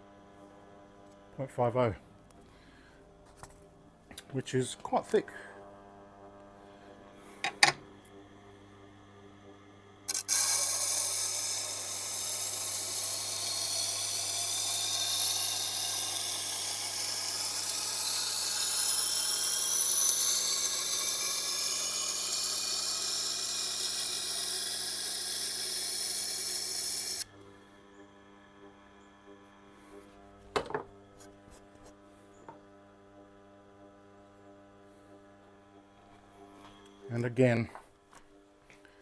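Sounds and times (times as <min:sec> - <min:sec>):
faint motor hum: 0:00.0 - 0:39.0
blade grinding on sharpening wheel: 0:10.1 - 0:27.3.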